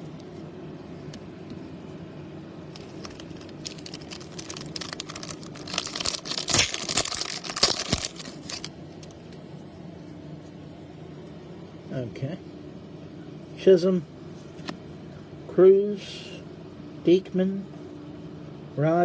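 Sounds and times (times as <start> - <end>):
low room hum: 0.0 - 19.0
foil wrapper tearing and crinkling: 2.7 - 8.7.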